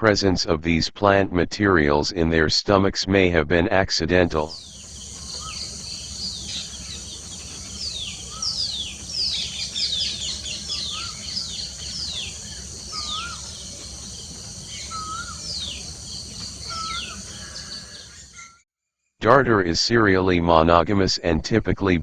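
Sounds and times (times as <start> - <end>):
birds whistling downward: 4.5 - 18.6
high insect drone: 4.5 - 18.6
low rise-and-fall bird call: 4.5 - 18.6.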